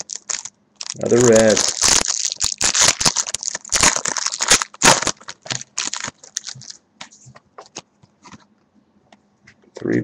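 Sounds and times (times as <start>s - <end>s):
card wrappers crinkling: 0.0s - 6.8s.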